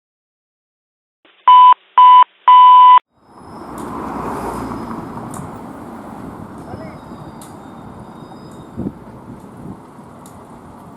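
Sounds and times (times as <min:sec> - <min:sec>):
loud electronic beeps: 0:01.4 - 0:03.0.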